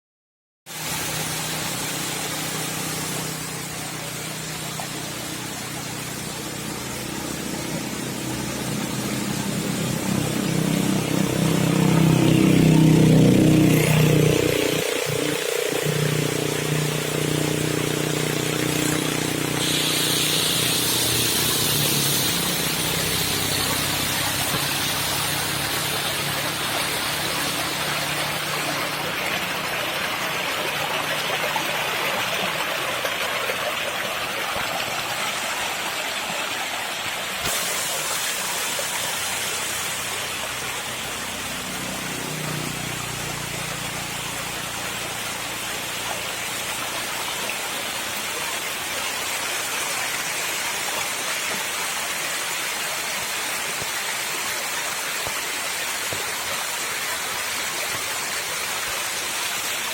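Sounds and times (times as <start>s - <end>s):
small waterfall rushing: 0.7s - 59.9s
vehicle engine hum: 0.8s - 50.2s.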